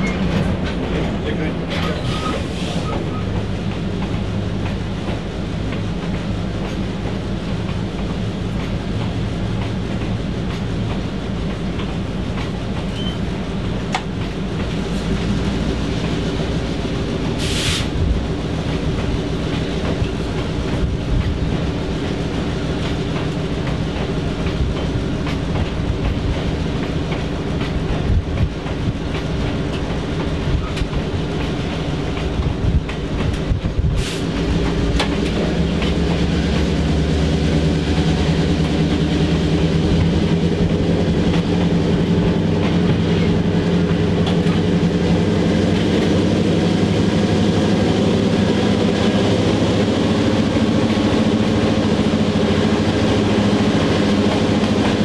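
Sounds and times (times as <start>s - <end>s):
diesel locomotive engine drone: 0.0s - 55.0s
brief hiss: 17.4s - 18.0s, 34.0s - 34.3s.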